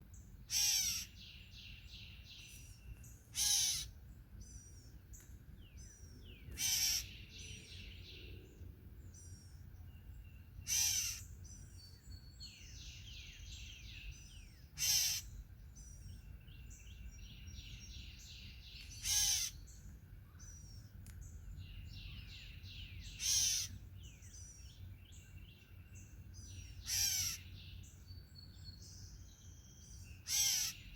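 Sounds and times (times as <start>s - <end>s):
soft bird chirping: 0.1s - 30.9s
bird loud call: 0.5s - 1.2s, 3.3s - 4.0s, 6.5s - 7.2s, 10.6s - 11.3s, 14.8s - 15.4s, 19.0s - 19.6s, 23.2s - 23.8s, 26.8s - 27.5s, 30.2s - 30.9s.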